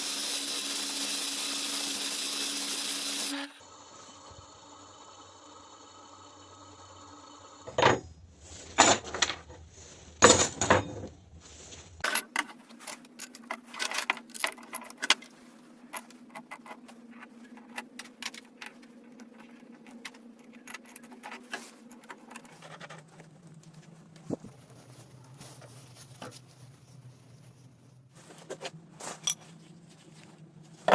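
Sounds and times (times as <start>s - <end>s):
metal parts clinking on a bench: 8.8s - 9.5s.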